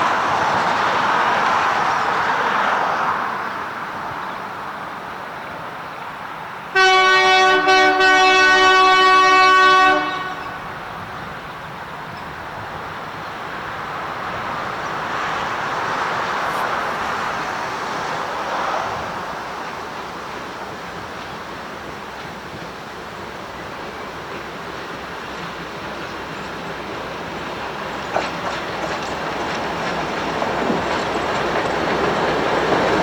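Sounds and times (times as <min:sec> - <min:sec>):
locomotive air horn: 0:06.7 - 0:10.8, 0:16.1 - 0:17.9
steady rushing noise: 0:13.8 - 0:21.1.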